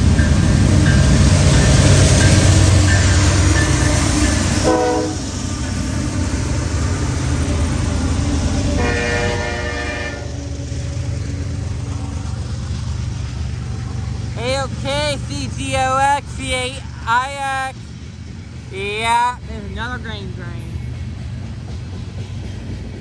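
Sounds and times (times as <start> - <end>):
diesel locomotives rumbling: 0.0 - 23.0
freight cars rolling on rails: 0.0 - 23.0
train horn: 4.6 - 5.3, 8.7 - 10.6.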